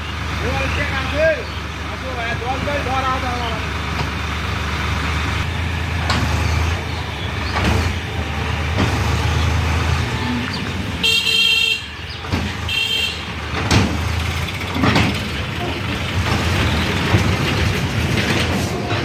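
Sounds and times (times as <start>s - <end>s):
tractor engine rumbling: 0.0s - 19.0s
high-pitched horn toots: 10.2s - 11.9s
knocks: 13.5s - 14.1s.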